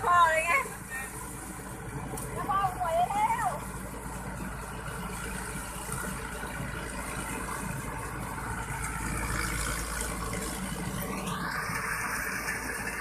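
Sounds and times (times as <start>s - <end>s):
harvester engine droning: 0.0s - 13.0s.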